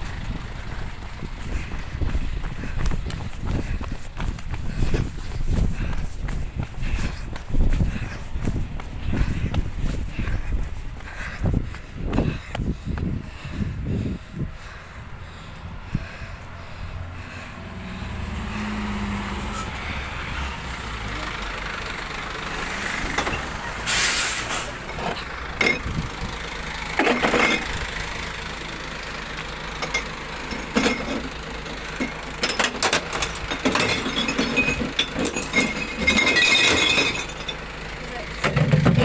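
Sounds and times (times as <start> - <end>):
diesel truck engine running: 0.0 - 39.0
air brake hiss: 23.8 - 24.8
glass clinks and clatters: 24.9 - 25.9, 27.0 - 27.8, 29.8 - 31.3, 32.4 - 37.6.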